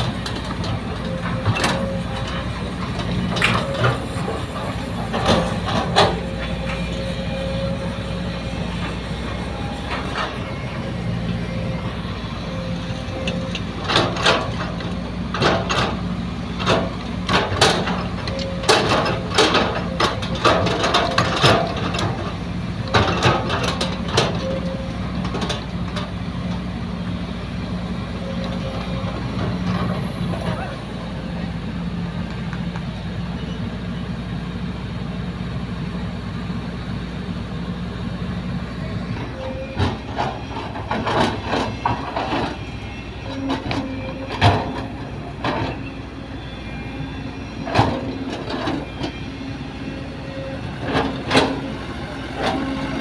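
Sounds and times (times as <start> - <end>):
metal clanks and knocks: 0.0 - 7.6, 12.5 - 26.6, 39.1 - 46.0, 47.6 - 49.2, 50.3 - 51.8
heavy diesel engine drone: 0.0 - 53.0.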